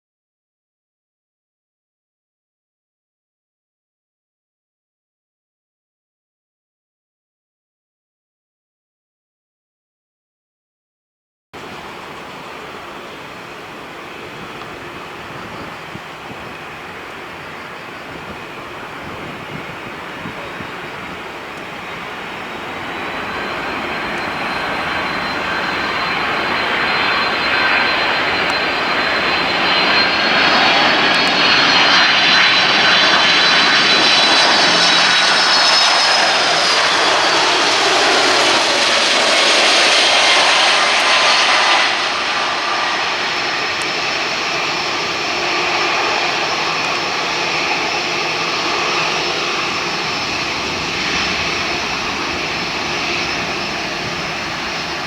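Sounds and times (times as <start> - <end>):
jet airliner engine noise: 11.6 - 55.0.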